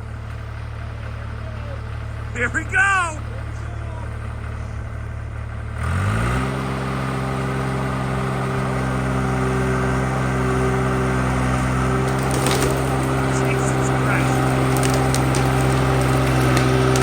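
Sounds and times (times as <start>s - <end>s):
skid steer engine revving: 0.0s - 17.0s.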